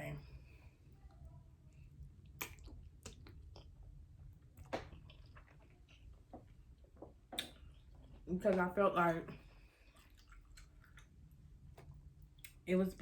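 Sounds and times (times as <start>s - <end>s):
chewing food with lip smacks: 1.0s - 8.3s, 9.8s - 12.7s.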